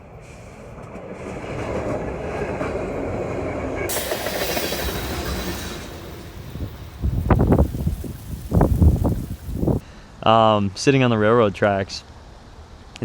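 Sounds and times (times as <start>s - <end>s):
train rumbling on track: 0.0s - 9.8s
sudden hiss: 3.9s - 9.8s.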